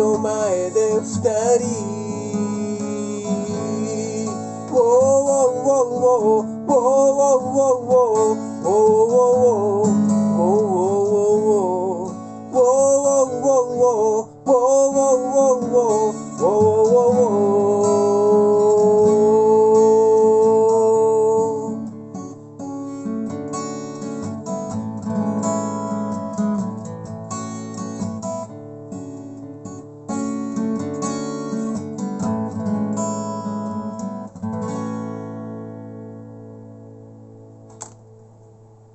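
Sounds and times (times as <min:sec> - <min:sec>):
person singing wordlessly: 0:00.0 - 0:22.0
strummed acoustic guitar: 0:00.0 - 0:38.9.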